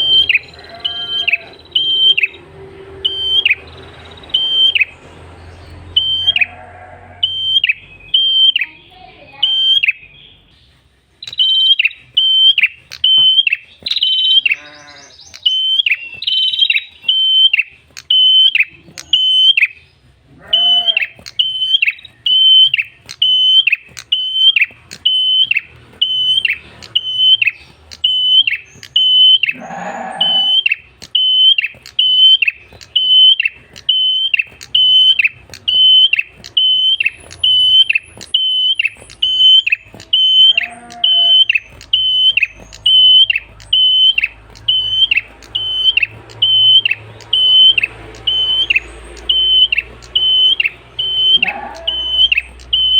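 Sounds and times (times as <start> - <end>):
songbird calling high notes: 0.0 - 52.9
brief lower bird calls: 20.4 - 52.9.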